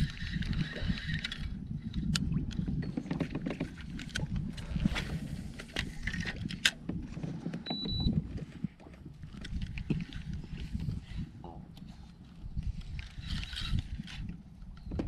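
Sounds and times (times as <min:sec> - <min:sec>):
knocks and clicks of gear: 0:05.6 - 0:10.2.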